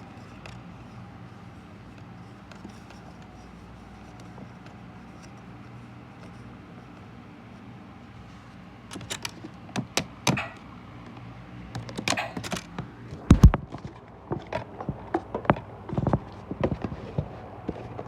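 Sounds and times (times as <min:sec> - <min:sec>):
washing machine humming: 0:00.0 - 0:18.0
clicks and knocks: 0:08.9 - 0:10.6, 0:11.8 - 0:13.9.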